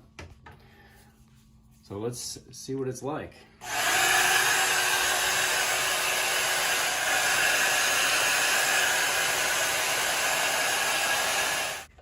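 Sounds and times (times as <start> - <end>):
hair dryer blowing air: 3.6 - 11.9.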